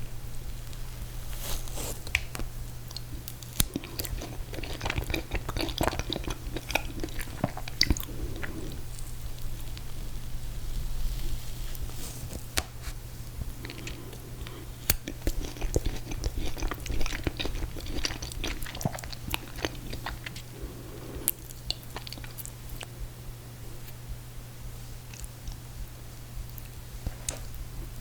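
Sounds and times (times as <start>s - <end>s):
steady low hum: 0.0s - 28.0s
wet chewing and mouth clicks: 1.9s - 9.9s, 13.4s - 23.0s.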